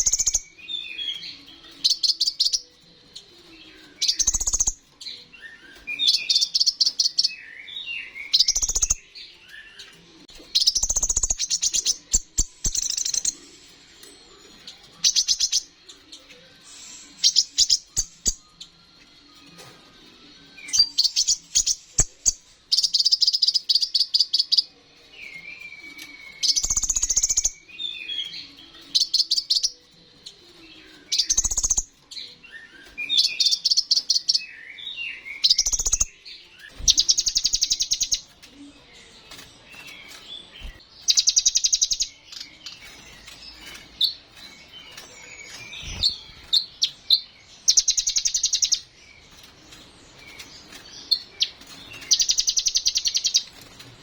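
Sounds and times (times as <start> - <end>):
bird twittering chirps: 0.0 - 2.7, 3.8 - 4.8, 5.4 - 9.9, 10.5 - 13.5, 25.8 - 29.8, 31.1 - 38.3, 39.8 - 49.0, 50.2 - 53.7
sunbird buzzy trills: 39.7 - 49.0.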